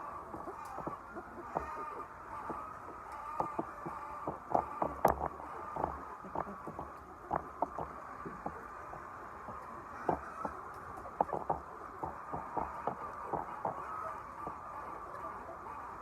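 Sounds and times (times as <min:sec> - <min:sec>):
hens clucking: 0:00.0 - 0:16.0
poultry house background din: 0:00.0 - 0:16.0.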